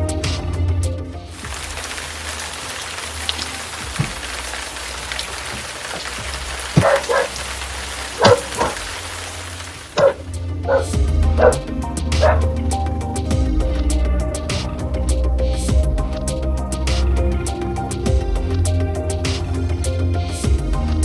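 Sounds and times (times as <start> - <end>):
steady rain falling: 1.3 - 19.5
dog barking: 6.8 - 7.4, 8.2 - 8.8, 10.0 - 11.6, 12.2 - 12.4.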